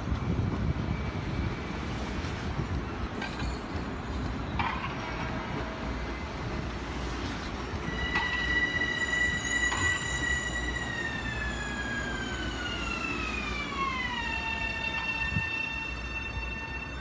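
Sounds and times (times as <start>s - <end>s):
train rumbling past: 0.0s - 17.0s
high-pitched wheel squeal: 7.8s - 17.0s.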